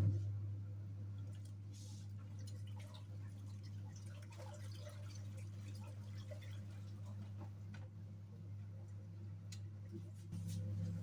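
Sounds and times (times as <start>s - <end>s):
clothes handled in water: 1.1s - 7.7s.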